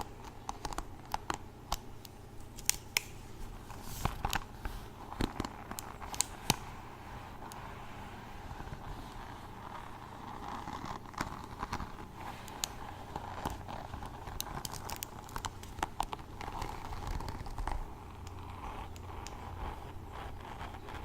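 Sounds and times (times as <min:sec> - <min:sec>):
crinkling: 0:00.0 - 0:21.0
steady hiss: 0:00.0 - 0:21.0.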